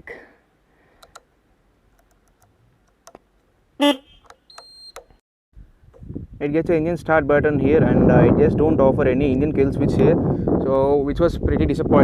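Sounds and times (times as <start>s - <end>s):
switch clicks: 1.0s - 1.3s, 4.2s - 5.2s
motorcycle horn honk: 3.8s - 4.9s
high-pitched beep: 3.8s - 5.1s.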